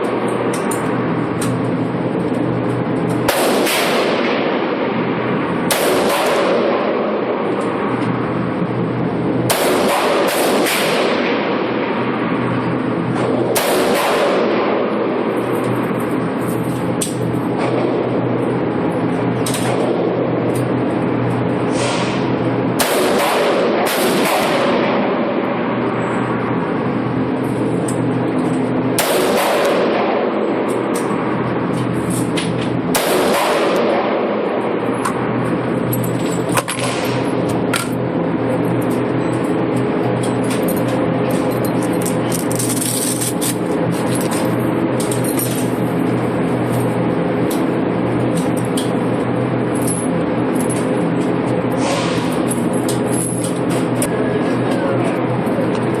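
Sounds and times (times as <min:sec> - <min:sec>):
gunshots: 0:03.3 - 0:05.1, 0:05.7 - 0:07.5, 0:09.5 - 0:12.2, 0:13.2 - 0:15.2, 0:22.8 - 0:25.5, 0:29.0 - 0:30.7, 0:32.9 - 0:34.8, 0:36.7 - 0:37.4.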